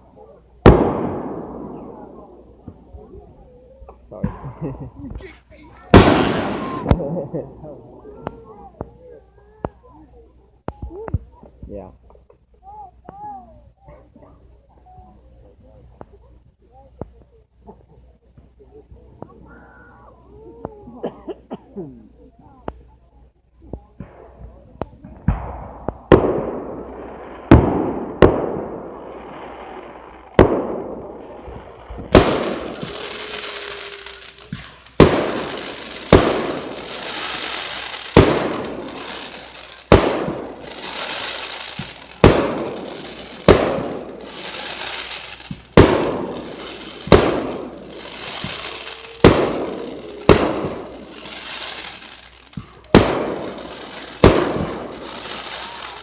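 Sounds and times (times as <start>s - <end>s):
continuous high hiss: 0.0s - 56.0s
fireworks shells bursting: 25.1s - 56.0s.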